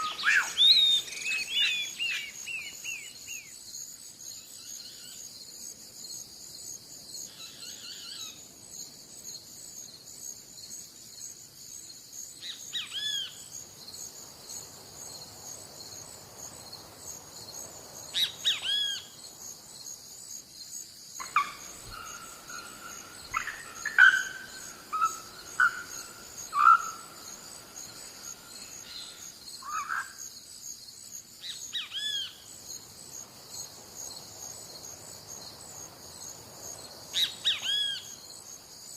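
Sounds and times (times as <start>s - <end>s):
wild birds calling: 0.0s - 3.4s, 21.2s - 30.2s
high-pitched insect chorus: 0.0s - 38.9s.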